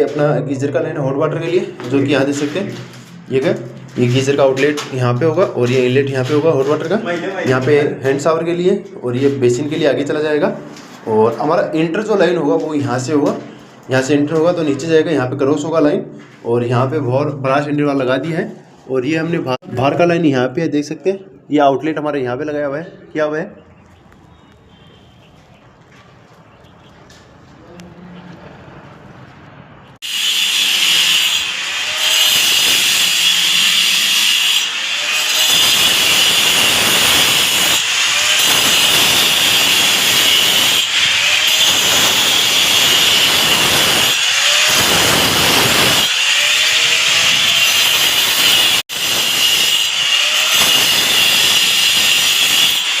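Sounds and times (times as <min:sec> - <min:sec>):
power cutter whining and grinding: 0:30.0 - 0:53.0.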